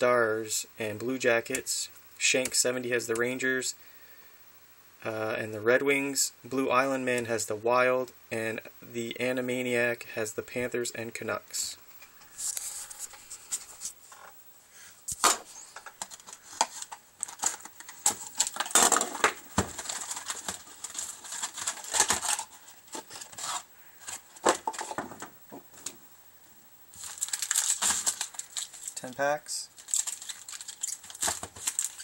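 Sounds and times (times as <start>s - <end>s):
card packs crinkling and rustling: 15.1s - 26.0s, 26.9s - 32.0s.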